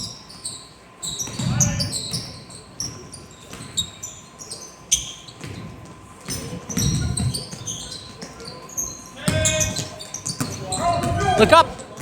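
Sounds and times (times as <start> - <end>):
low murmur in hall: 0.0 - 12.0
sneakers squeaking: 0.0 - 12.0
basketball bouncing: 9.3 - 12.0.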